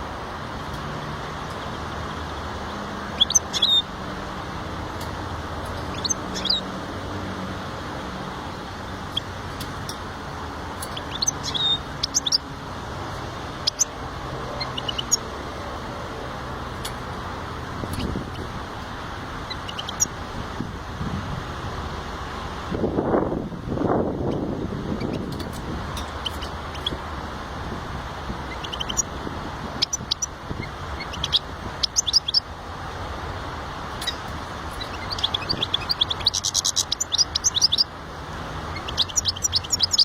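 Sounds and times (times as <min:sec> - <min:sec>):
finch chirping and trilling: 0:03.1 - 0:03.9, 0:05.7 - 0:06.7, 0:10.8 - 0:12.5, 0:13.6 - 0:13.9, 0:14.6 - 0:15.2, 0:19.4 - 0:20.2, 0:25.0 - 0:27.0, 0:28.5 - 0:29.1, 0:29.8 - 0:32.5, 0:34.0 - 0:37.9, 0:38.7 - 0:40.0.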